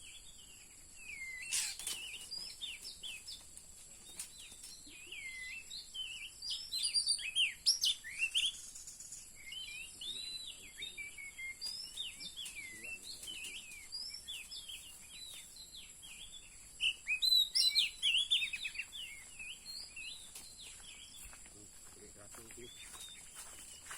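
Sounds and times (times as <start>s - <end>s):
bird chirping and whistling: 1.1s - 3.2s, 4.9s - 21.0s.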